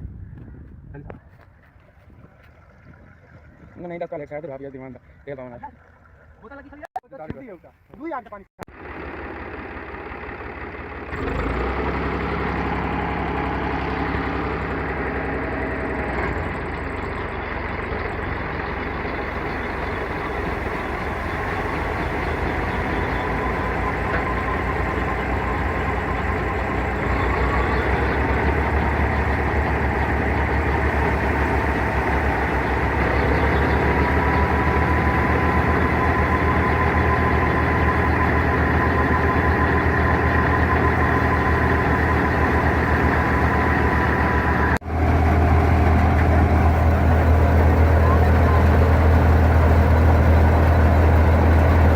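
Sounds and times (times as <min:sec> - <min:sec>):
tractor engine drone: 0:08.7 - 0:51.9
thin mechanical whine: 0:15.3 - 0:44.8.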